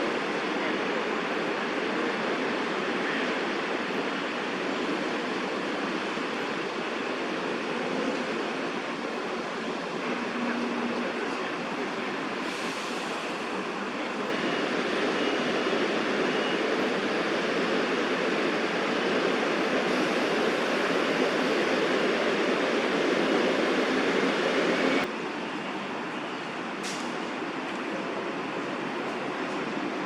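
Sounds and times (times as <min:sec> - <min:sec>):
distant traffic rushing: 0:00.0 - 0:30.0.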